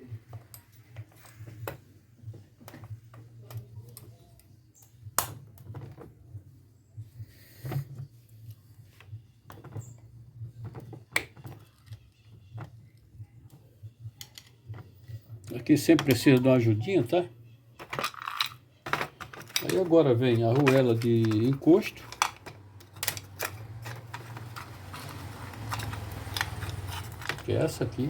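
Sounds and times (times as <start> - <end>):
small metal clicks and knocks: 8.4 - 16.5, 17.8 - 28.0.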